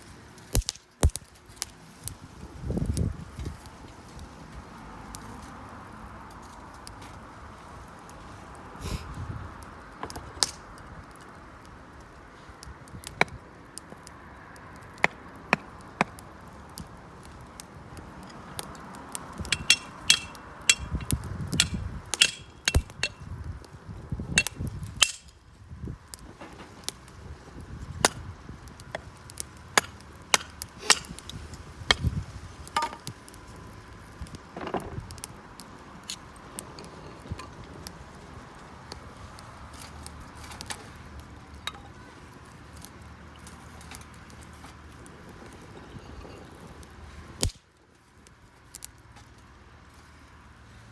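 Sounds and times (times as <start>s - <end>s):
wood fire crackling: 0.0s - 50.9s
metallic clinks: 19.4s - 23.2s.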